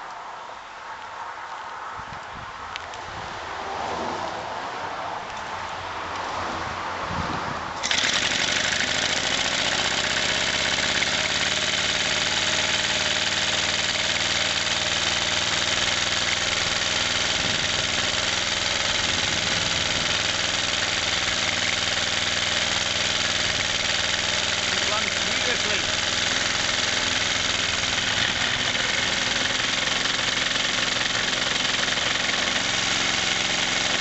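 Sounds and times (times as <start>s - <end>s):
single-cylinder engine running: 7.8s - 34.0s.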